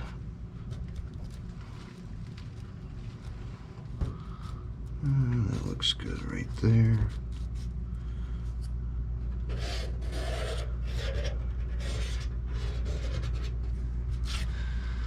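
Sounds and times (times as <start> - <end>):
steady low hum: 0.0 - 15.0
scraping on sheet metal: 9.5 - 13.6.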